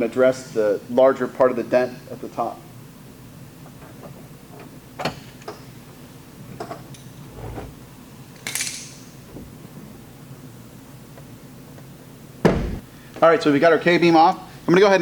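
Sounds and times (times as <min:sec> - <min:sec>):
low thump: 0:12.4 - 0:12.9.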